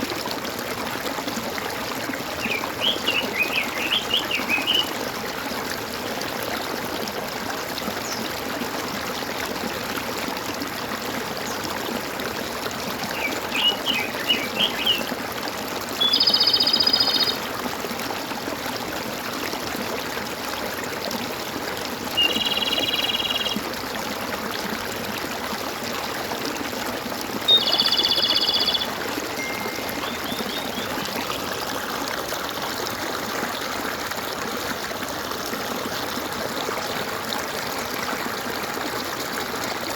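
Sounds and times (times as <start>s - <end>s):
stream trickling and gurgling: 0.0s - 39.9s
bird trilled calls: 2.4s - 4.9s, 13.1s - 15.1s, 16.0s - 17.4s, 22.2s - 23.6s, 27.5s - 31.3s
short bird chirps: 27.5s - 31.0s.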